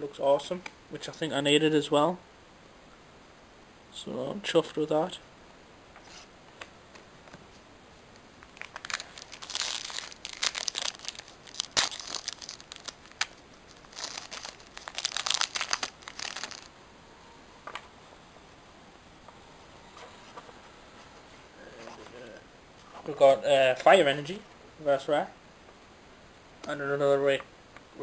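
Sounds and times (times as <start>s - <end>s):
foil wrapper crinkling and tearing: 8.4s - 16.7s.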